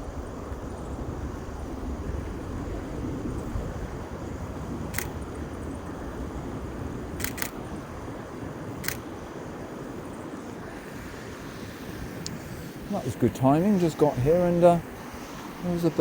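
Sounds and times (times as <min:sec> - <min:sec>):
steady low rumble: 0:00.0 - 0:07.9
camera shutter clicking: 0:04.9 - 0:05.2, 0:07.2 - 0:07.6, 0:08.8 - 0:09.0.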